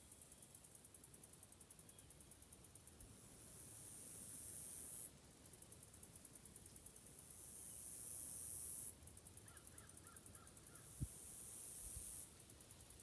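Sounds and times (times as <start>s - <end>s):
high-pitched hiss: 3.0s - 9.1s, 10.0s - 13.0s.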